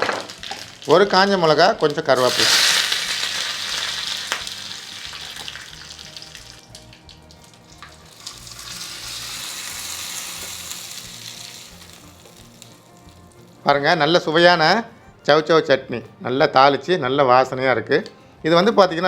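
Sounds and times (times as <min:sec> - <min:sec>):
spices sizzling in hot oil: 0:00.0 - 0:13.7.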